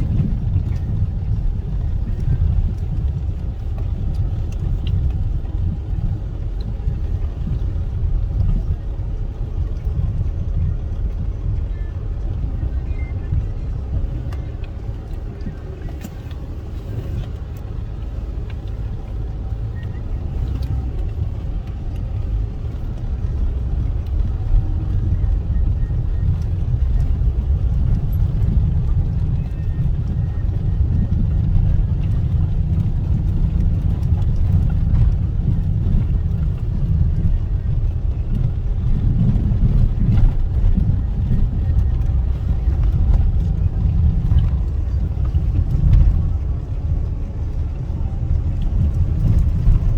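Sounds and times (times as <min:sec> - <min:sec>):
car road and engine noise: 0:00.0 - 0:49.9.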